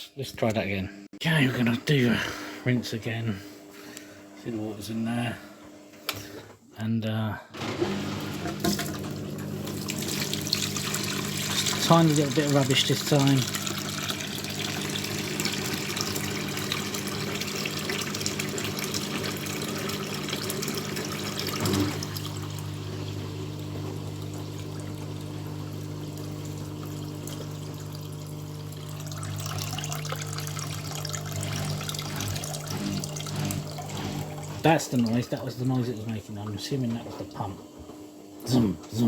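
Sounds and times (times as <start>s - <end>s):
drain pump humming: 7.6s - 39.0s
water gushing: 7.8s - 36.6s.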